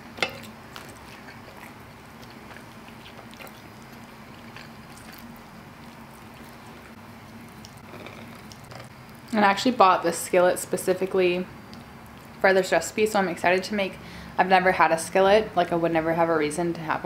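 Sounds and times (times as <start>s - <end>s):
faint steady hum: 0.0s - 17.0s
metal spoon clinking on skillet: 0.2s - 0.5s
spoon scraping through pasta: 0.2s - 8.9s
chewing with wet mouth clicks: 0.4s - 9.4s, 11.7s - 12.4s.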